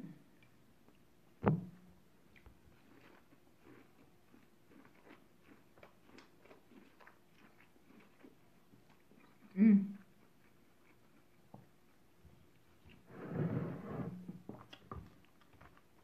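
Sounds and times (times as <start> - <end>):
chewing corn crunches: 2.3 - 12.0.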